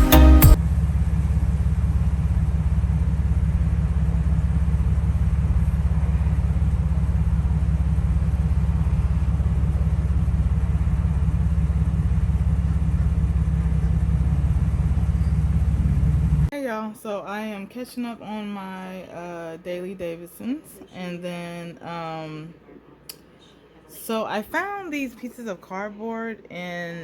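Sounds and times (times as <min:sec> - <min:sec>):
pulsing motor rumble: 0:00.6 - 0:16.5.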